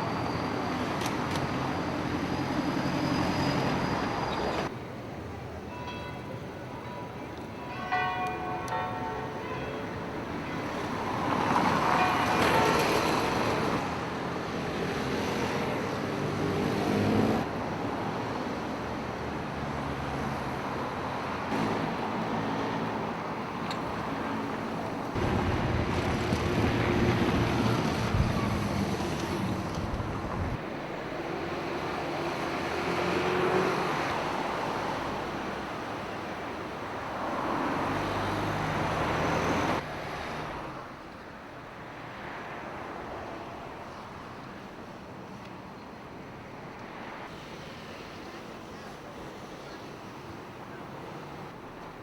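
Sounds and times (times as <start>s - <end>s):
motor vehicles passing: 21.4s - 40.7s.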